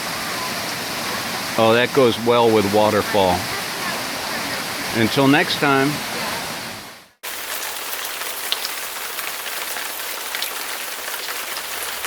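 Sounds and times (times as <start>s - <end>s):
hiss of falling water: 0.0s - 12.0s.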